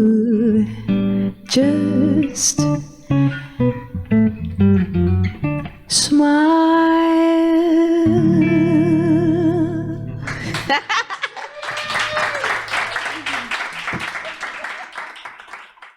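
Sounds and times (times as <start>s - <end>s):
person singing with vibrato: 0.0s - 3.7s, 5.9s - 10.2s
acoustic guitar picking: 0.7s - 6.0s, 8.0s - 10.6s
people clapping: 10.2s - 15.9s.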